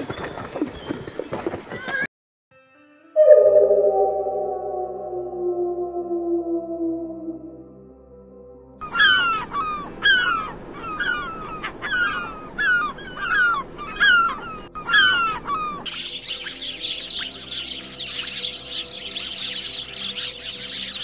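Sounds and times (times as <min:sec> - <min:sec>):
high-pitched bird chirping: 0:03.2 - 0:07.6, 0:15.9 - 0:21.0.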